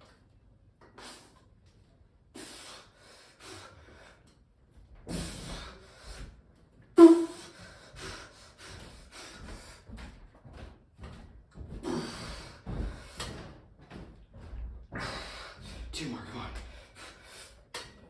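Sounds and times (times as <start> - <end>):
person breathing hard: 11.8 - 13.4, 14.9 - 15.9.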